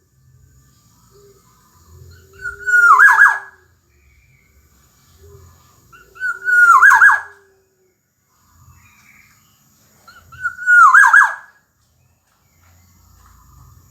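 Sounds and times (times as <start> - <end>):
bird fluty whistled song: 2.0 - 7.5, 8.7 - 13.3.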